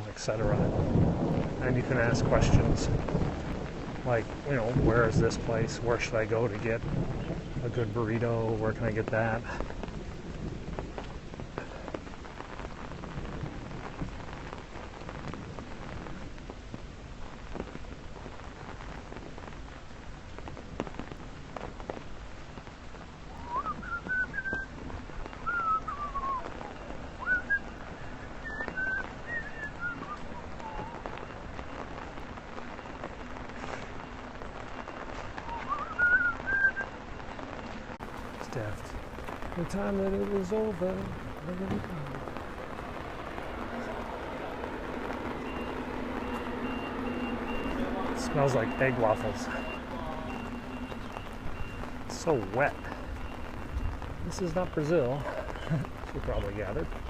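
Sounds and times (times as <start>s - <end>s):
steady rain: 0.0s - 57.0s
person whistling gliding notes: 23.4s - 24.7s, 25.4s - 26.5s, 27.2s - 31.0s, 35.4s - 36.8s.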